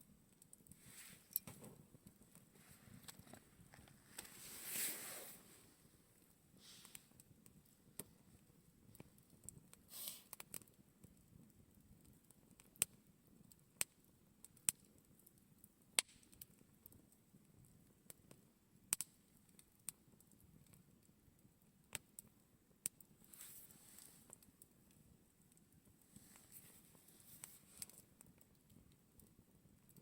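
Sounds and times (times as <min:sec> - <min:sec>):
campfire crackling: 0:00.0 - 0:30.0
fire hiss: 0:04.1 - 0:07.2, 0:09.9 - 0:10.4.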